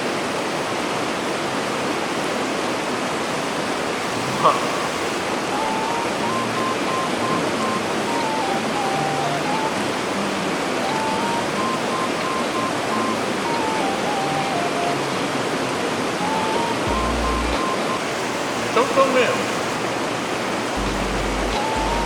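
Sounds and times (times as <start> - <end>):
fast-flowing river rushing: 0.0 - 22.0
simple tune of single notes: 5.5 - 18.1, 20.8 - 22.0.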